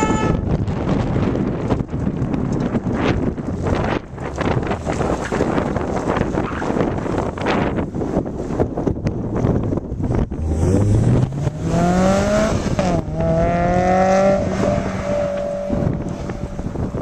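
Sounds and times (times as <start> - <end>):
wind buffeting microphone: 0.0 - 17.0
sports car engine accelerating: 10.1 - 17.0.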